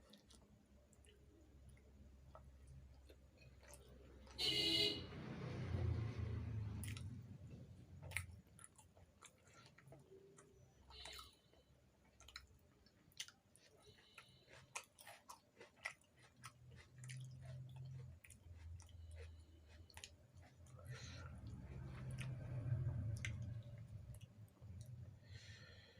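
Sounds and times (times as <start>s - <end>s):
person chewing food: 0.0s - 4.4s, 5.9s - 25.9s.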